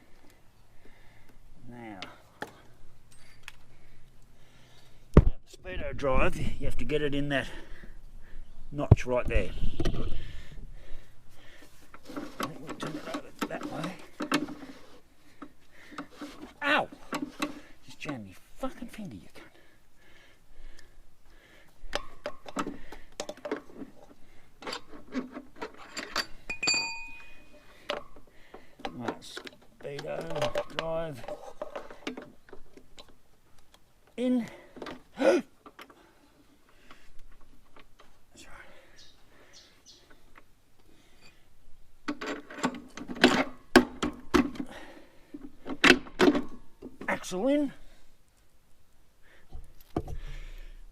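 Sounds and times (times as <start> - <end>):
metallic clicks and knocks: 28.8 - 33.8.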